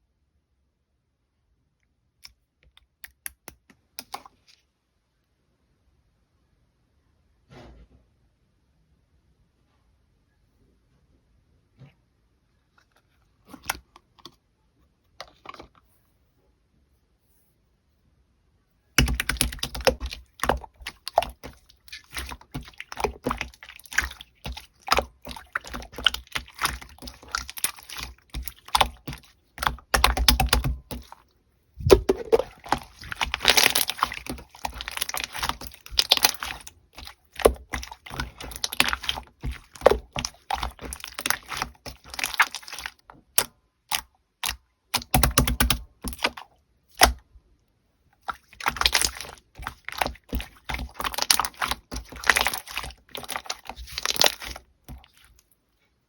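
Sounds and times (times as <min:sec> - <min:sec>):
slime squeezed by hand: 0:19.0 - 0:31.2, 0:31.8 - 0:47.2, 0:48.2 - 0:55.4.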